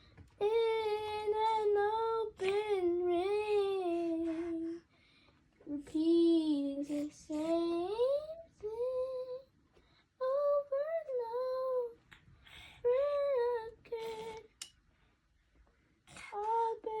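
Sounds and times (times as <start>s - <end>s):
child singing unaccompanied: 0.4s - 4.9s, 5.6s - 9.5s, 10.2s - 12.1s, 12.7s - 14.7s, 16.1s - 17.0s.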